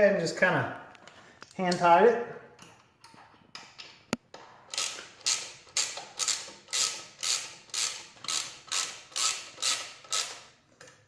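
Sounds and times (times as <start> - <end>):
ratchet wrench clicking: 4.7 - 10.5.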